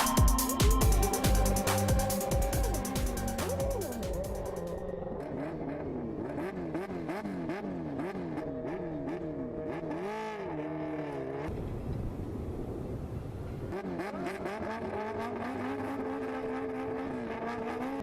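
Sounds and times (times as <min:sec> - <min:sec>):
racing engine revving: 0:00.0 - 0:11.5, 0:13.7 - 0:18.0.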